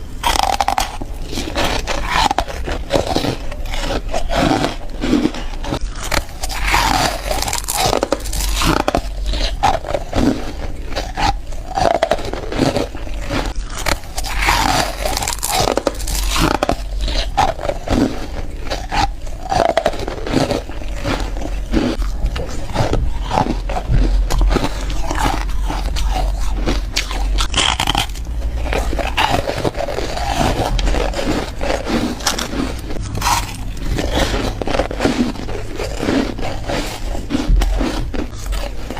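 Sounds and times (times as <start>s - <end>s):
scraping grinding: 0.0s - 38.9s
foam ice crunching: 0.3s - 38.9s.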